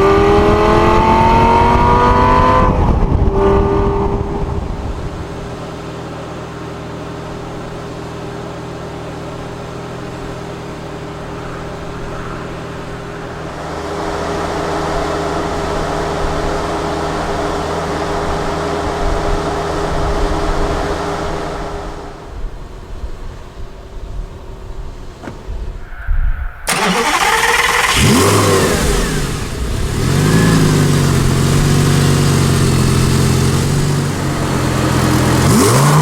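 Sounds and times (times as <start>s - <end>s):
rushing noise: 25.2s - 31.4s
car engine running: 26.7s - 36.0s.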